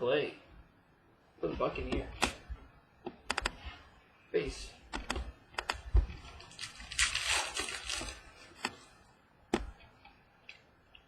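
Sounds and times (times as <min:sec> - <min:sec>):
trading cards rustling: 0:06.3 - 0:08.8.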